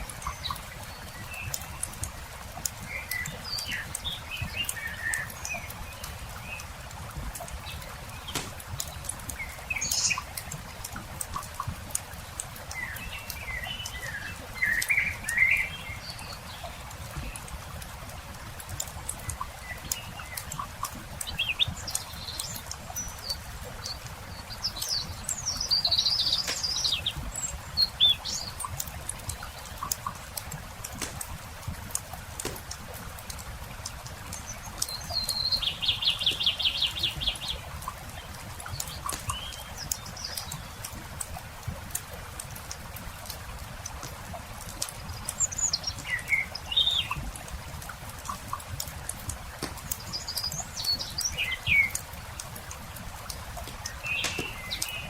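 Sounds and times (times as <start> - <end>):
songbird singing: 0.0 - 6.9, 7.5 - 10.8, 12.1 - 17.7, 19.1 - 41.1, 44.9 - 47.4, 48.3 - 55.0
campfire crackling: 0.0 - 15.8, 16.6 - 55.0
bird chirping: 24.3 - 28.7, 34.3 - 37.6, 49.6 - 52.0, 53.7 - 55.0.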